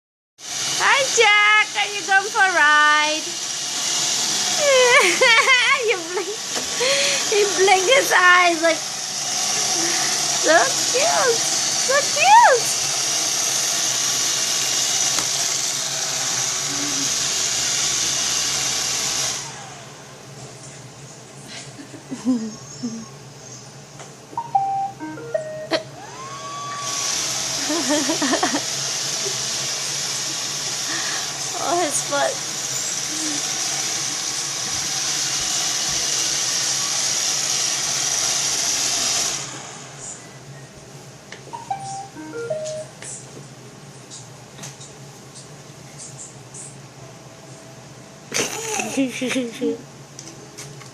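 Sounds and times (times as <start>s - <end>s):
robot vacuum whirring: 3.2s - 19.8s, 26.0s - 39.6s
motor winding down whine: 6.2s - 20.0s, 24.4s - 40.0s.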